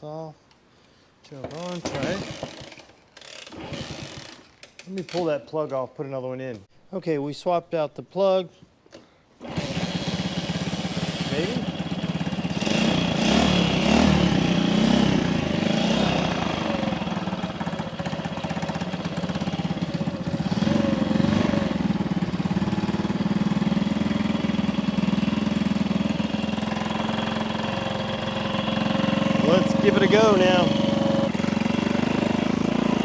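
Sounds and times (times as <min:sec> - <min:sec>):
motorcycle engine revving and idling: 0:01.5 - 0:02.8, 0:09.4 - 0:33.0.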